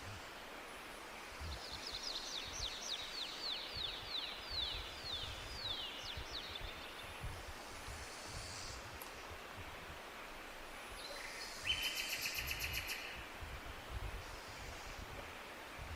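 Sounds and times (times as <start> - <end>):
forest background hiss: 0.0 - 15.9
songbird singing: 1.1 - 9.4, 10.8 - 13.3.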